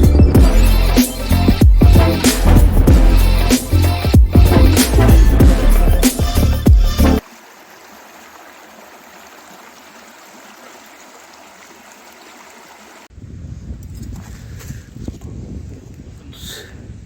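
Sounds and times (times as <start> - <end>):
background music: 0.0 - 7.2
loud outdoor sound: 0.0 - 13.1
stream water flowing: 6.8 - 13.1.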